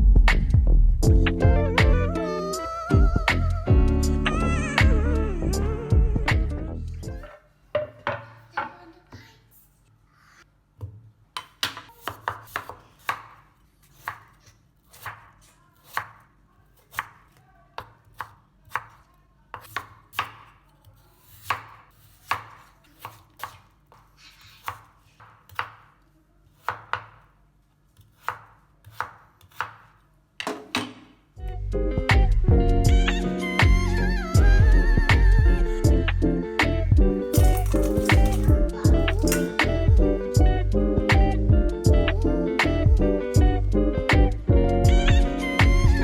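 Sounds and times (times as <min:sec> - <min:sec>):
knife chopping on cutting board: 0:10.8 - 0:16.2, 0:19.6 - 0:24.0, 0:24.6 - 0:27.3, 0:28.0 - 0:31.1.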